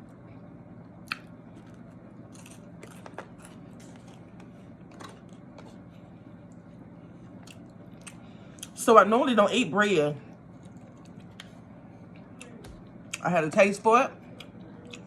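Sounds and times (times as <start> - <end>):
person chewing: 1.0 - 6.0, 7.3 - 8.8, 10.6 - 11.6, 14.3 - 15.0
small crunches: 1.1 - 6.6.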